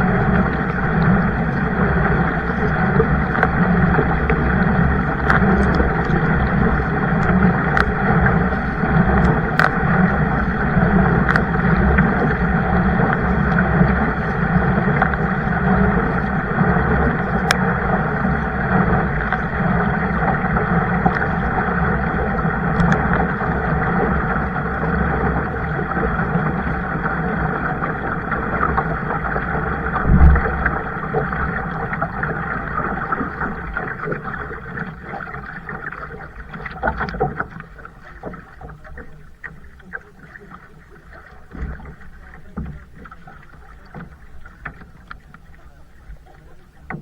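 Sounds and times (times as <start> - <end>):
water sloshing around kayak: 0.0 - 47.0
sharp clicks: 9.1 - 9.9.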